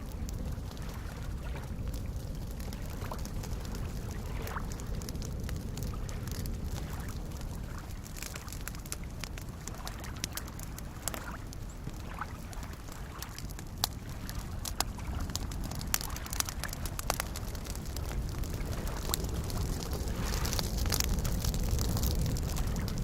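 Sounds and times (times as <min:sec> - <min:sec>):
small waves lapping: 0:00.0 - 0:22.9
campfire crackling and popping: 0:00.0 - 0:23.0.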